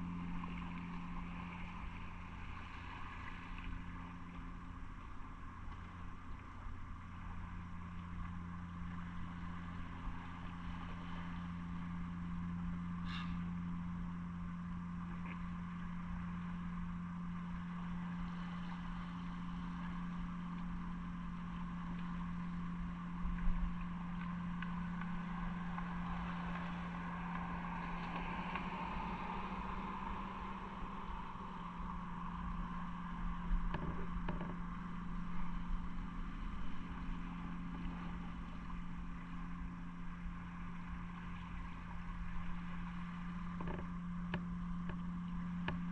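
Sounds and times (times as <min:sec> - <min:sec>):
wind and road noise: 0:21.7 - 0:45.9.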